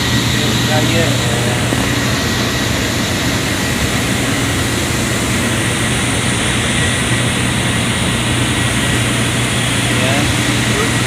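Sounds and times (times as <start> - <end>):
air compressor drone: 0.0 - 11.0.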